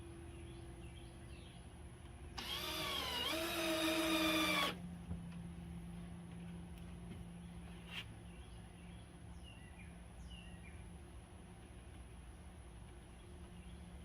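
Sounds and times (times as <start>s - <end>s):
power drill driving a screw: 2.4s - 4.8s.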